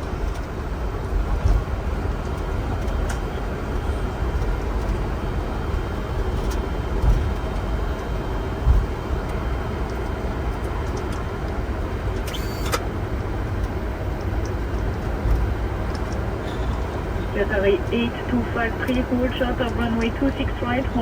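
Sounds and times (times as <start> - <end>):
aircraft engine and airflow rumble: 0.0 - 21.0.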